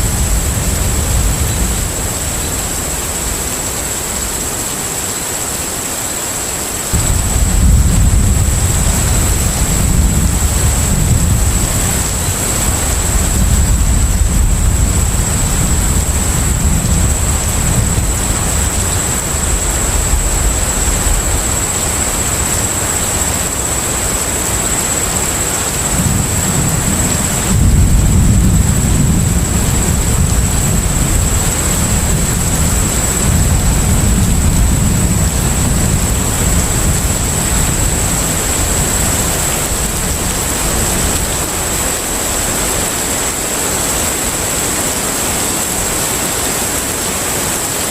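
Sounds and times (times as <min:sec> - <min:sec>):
wind and water hiss: 0:00.0 - 0:47.9
deep low rumble: 0:06.9 - 0:22.3.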